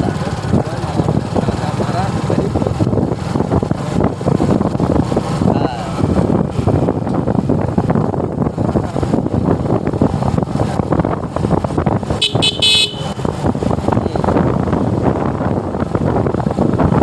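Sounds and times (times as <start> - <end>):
motorcycle engine: 0.0 - 17.0
road noise: 0.0 - 17.0
wind rushing on microphone: 0.0 - 17.0
vehicle horn honks: 12.2 - 13.2.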